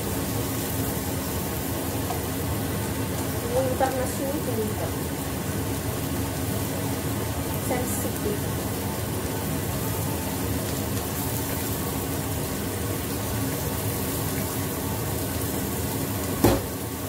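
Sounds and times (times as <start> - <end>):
omelette sizzling in a pan: 0.0 - 17.0
sharp knock: 16.4 - 16.7.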